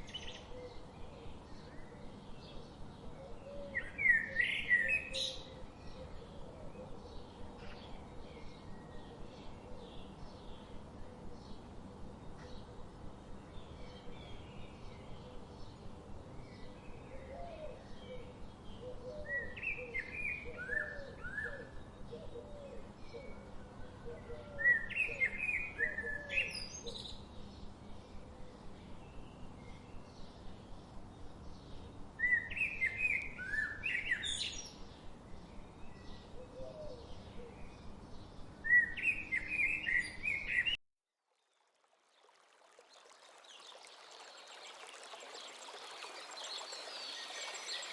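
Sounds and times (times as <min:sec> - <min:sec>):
songbirds singing bright phrases: 0:00.0 - 0:40.8, 0:43.0 - 0:47.9
steady background hiss: 0:42.4 - 0:47.9
lower bird chirps: 0:43.4 - 0:47.9.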